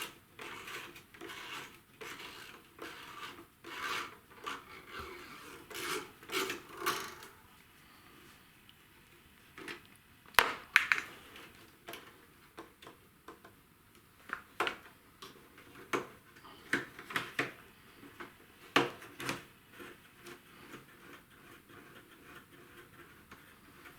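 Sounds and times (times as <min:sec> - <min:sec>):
hard objects clicking and knocking: 0:10.3 - 0:11.2.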